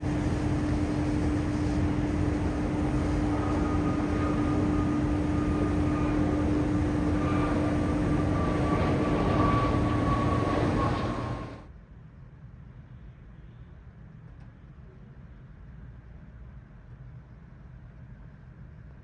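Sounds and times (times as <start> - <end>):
aircraft engines running: 0.0 - 11.7
high whine: 0.0 - 11.7.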